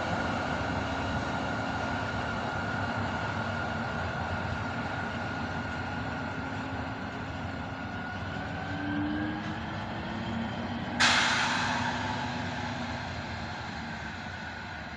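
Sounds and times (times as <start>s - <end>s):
diesel locomotive running: 0.0s - 14.9s
mechanical whine: 5.8s - 14.9s
loud hiss: 11.0s - 14.6s.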